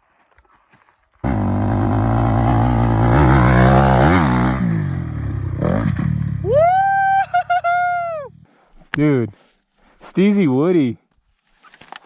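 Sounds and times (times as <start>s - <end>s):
dirt bike engine revving: 1.2s - 6.8s
person whooping: 6.4s - 8.4s.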